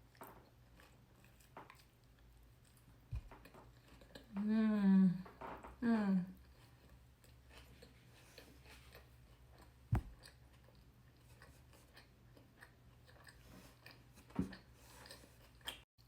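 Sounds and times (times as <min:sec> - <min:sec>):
person chewing: 0:00.1 - 0:04.4, 0:06.4 - 0:15.8
sharp knocks: 0:09.9 - 0:10.1.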